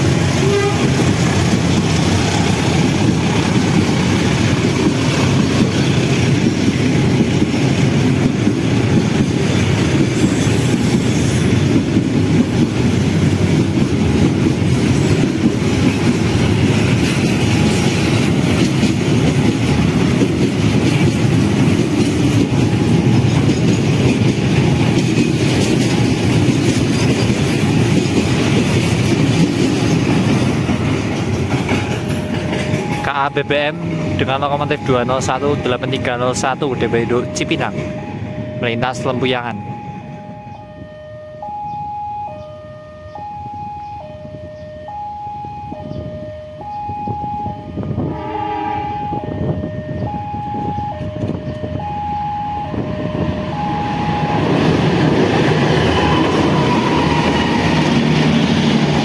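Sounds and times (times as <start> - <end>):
steel wheels rumbling on rails: 0.0 - 40.8, 47.1 - 59.0
high wheel squeals: 10.2 - 11.8, 55.6 - 58.4.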